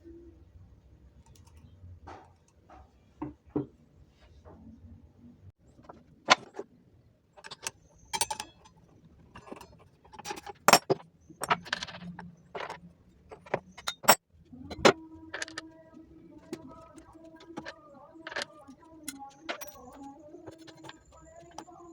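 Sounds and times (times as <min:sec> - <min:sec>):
metal parts clicking and clinking: 0:07.4 - 0:21.9.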